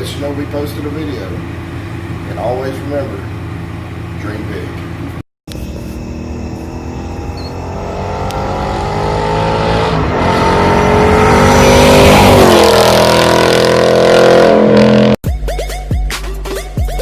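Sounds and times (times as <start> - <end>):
car engine accelerating hard: 4.8 - 15.2.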